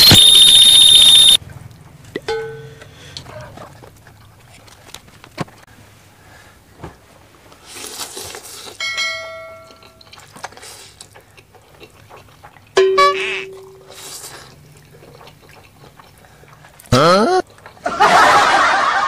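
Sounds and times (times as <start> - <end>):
noodles slurped: 10.1 - 12.8, 13.8 - 17.9.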